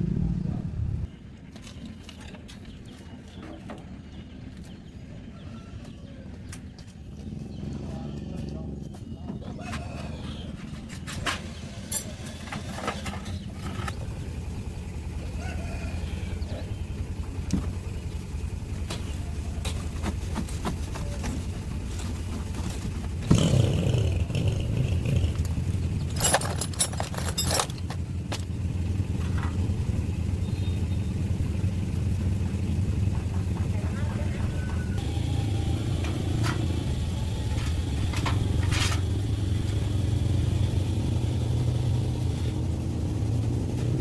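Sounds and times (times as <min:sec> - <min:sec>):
tractor engine running: 0:11.5 - 0:44.0.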